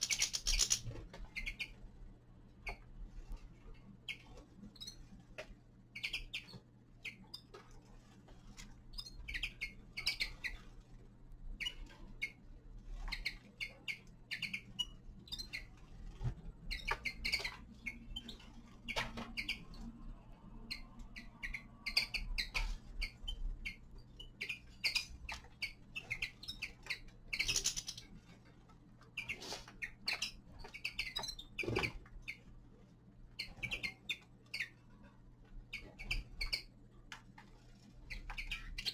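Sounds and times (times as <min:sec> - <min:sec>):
finches chirping: 0:00.0 - 0:01.8, 0:05.9 - 0:07.5, 0:08.9 - 0:10.7, 0:11.5 - 0:19.9, 0:20.5 - 0:28.2, 0:29.1 - 0:32.5, 0:33.3 - 0:34.8, 0:35.6 - 0:36.8, 0:38.0 - 0:38.9.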